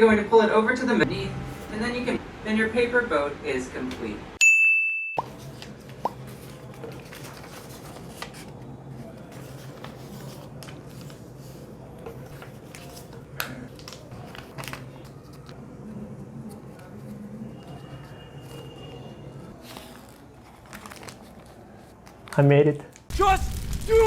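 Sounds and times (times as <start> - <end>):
paper rustling and creasing: 5.3 - 15.8, 16.4 - 23.1.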